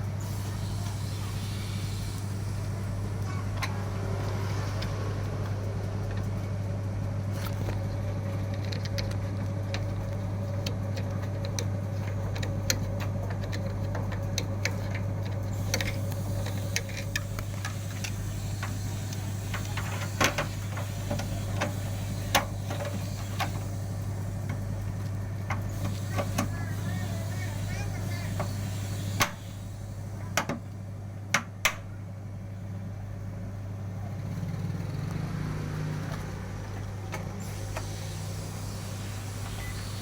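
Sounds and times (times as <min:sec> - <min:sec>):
high steady whine: 0:00.0 - 0:30.6, 0:36.2 - 0:40.0
low electrical hum: 0:00.0 - 0:40.0.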